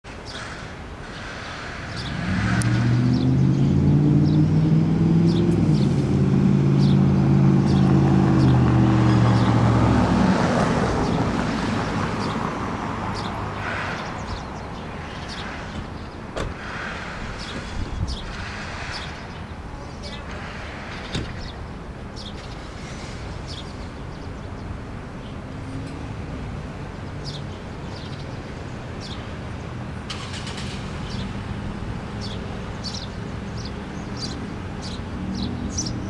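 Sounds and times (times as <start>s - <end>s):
tyres on road hiss: 0.2s - 3.0s, 13.6s - 14.4s, 15.0s - 21.6s, 22.3s - 23.9s, 30.1s - 31.3s
engine humming: 0.4s - 36.0s
small birds chirping: 6.7s - 8.6s, 11.0s - 26.2s, 26.9s - 29.8s, 30.4s - 31.5s, 32.1s - 36.0s.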